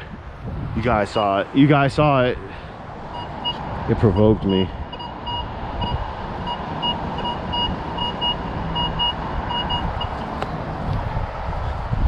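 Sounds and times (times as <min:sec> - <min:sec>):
low wind rumble: 0:00.0 - 0:12.0
metal detector beeping: 0:04.9 - 0:10.3.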